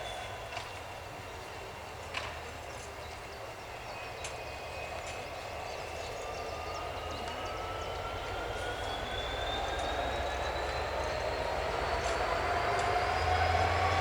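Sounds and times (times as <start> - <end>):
diesel locomotive rumble: 5.3 - 14.0.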